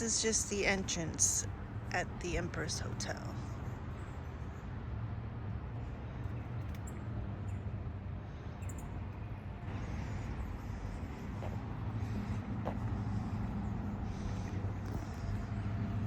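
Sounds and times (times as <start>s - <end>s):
engine humming: 0.0s - 4.1s, 8.3s - 16.0s
street traffic: 0.0s - 16.0s.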